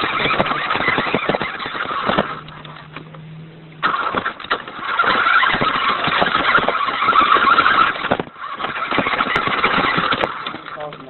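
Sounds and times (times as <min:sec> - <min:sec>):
toy car motor whine: 0:00.0 - 0:03.0, 0:03.8 - 0:11.0.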